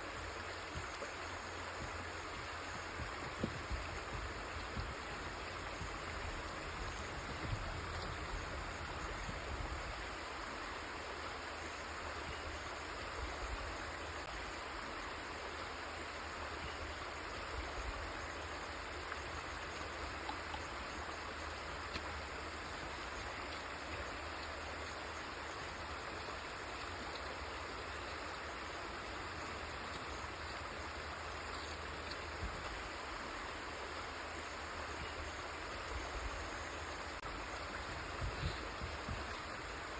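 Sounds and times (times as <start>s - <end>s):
river water flowing: 0.0s - 39.9s
small water splashes: 18.1s - 39.9s.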